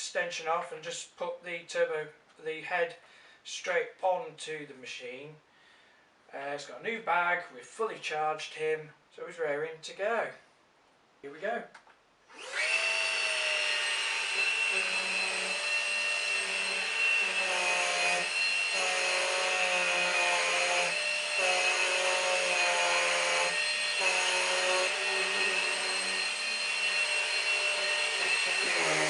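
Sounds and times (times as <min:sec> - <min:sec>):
vacuum cleaner whining: 0:12.3 - 0:29.0.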